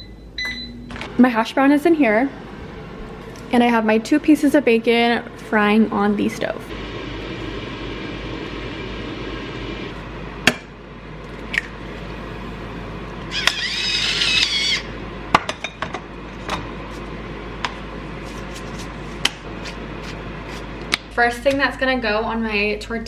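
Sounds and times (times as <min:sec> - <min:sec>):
high squeal: 0:13.3 - 0:14.9.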